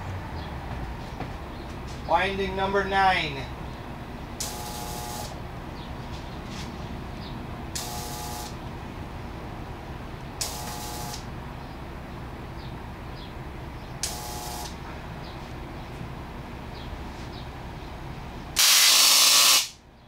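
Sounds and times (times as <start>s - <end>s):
tesla coil spark gap crackling: 4.4s - 5.4s, 7.8s - 8.6s, 10.4s - 11.3s, 14.0s - 14.8s, 18.6s - 19.8s.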